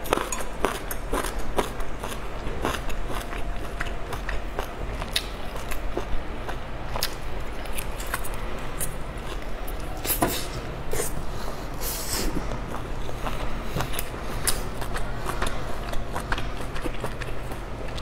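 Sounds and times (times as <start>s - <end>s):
wet chewing and biting: 12.4s - 18.0s.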